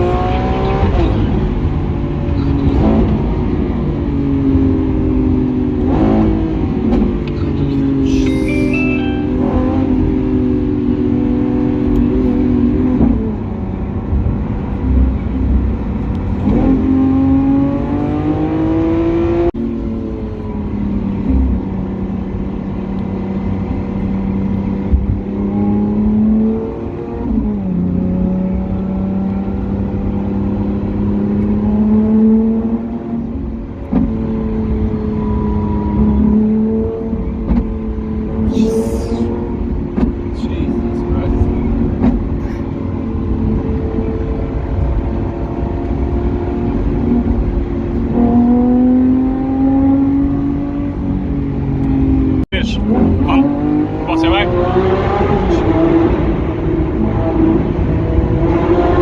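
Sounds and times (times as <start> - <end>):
sports car engine revving: 9.1 - 59.0.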